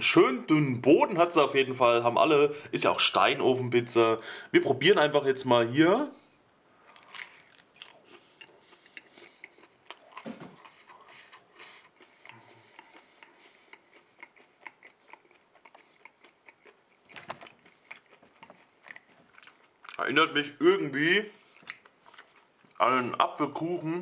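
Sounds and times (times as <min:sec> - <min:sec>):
man chewing food: 0:06.7 - 0:20.1, 0:21.3 - 0:22.8.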